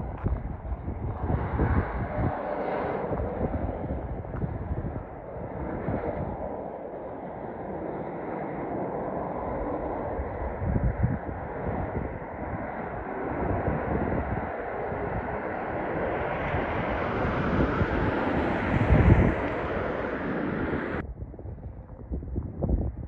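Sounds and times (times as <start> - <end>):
wind buffeting microphone: 0.0 - 23.0
road traffic going by: 13.2 - 21.0.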